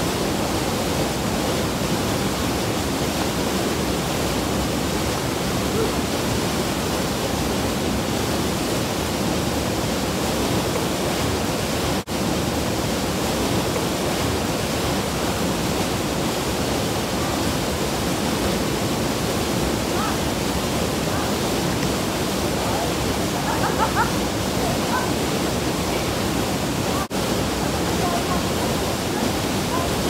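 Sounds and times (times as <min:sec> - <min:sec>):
waterfall roaring: 0:00.0 - 0:30.0.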